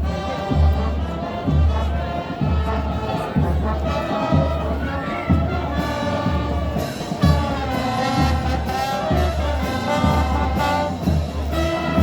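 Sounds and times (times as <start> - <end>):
brass band playing: 0.0 - 12.0.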